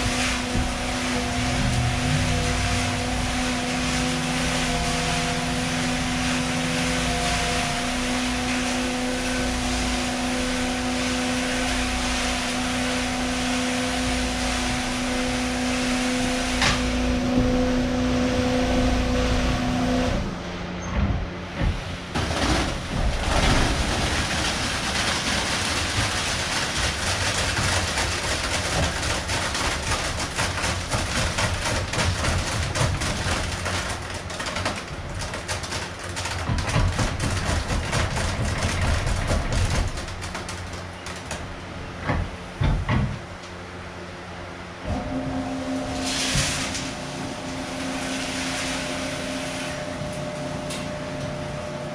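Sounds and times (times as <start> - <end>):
motor humming: 0.0 - 27.0.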